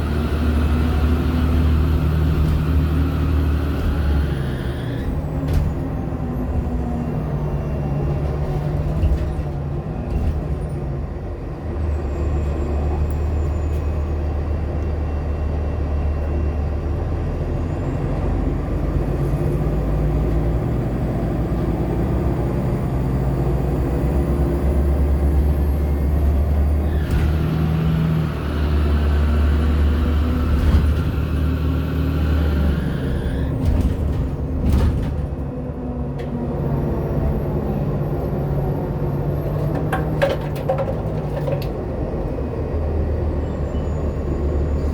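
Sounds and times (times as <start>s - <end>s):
bus engine low drone: 0.0s - 44.9s.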